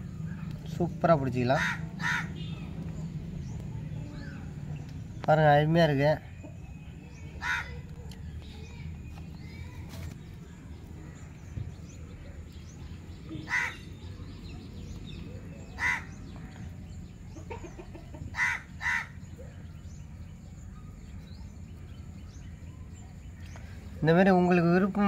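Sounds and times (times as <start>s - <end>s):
short bird calls: 13.3s - 13.9s, 15.5s - 16.7s.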